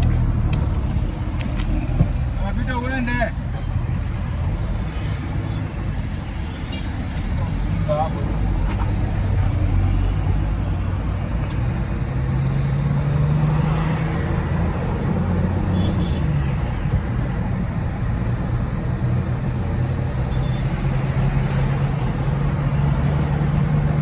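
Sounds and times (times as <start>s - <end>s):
truck engine running: 0.0s - 2.6s
road noise: 0.0s - 24.0s.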